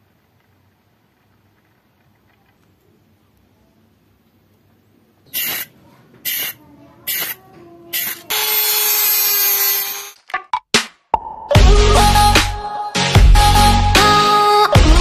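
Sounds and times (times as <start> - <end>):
aerosol spray can hissing: 5.3 - 9.8.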